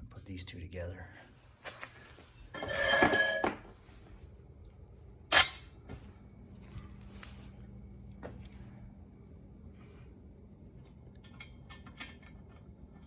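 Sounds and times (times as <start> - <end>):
metallic rattle with ringing: 2.4 - 3.7, 11.2 - 13.0.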